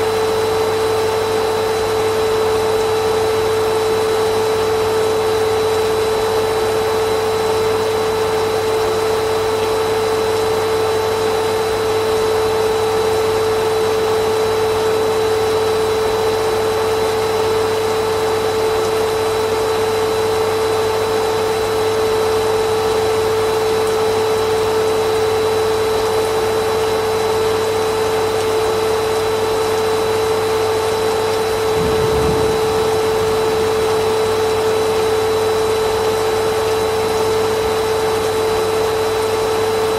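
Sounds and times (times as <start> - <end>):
vacuum cleaner running: 0.0 - 39.9
brief low rumble: 31.7 - 34.1.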